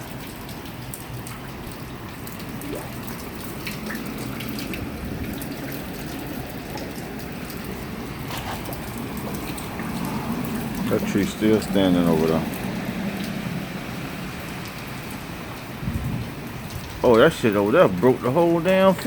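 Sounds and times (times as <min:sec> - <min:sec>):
raindrop clicks: 0:00.0 - 0:13.6, 0:14.3 - 0:19.0
steady rain falling: 0:00.0 - 0:19.0.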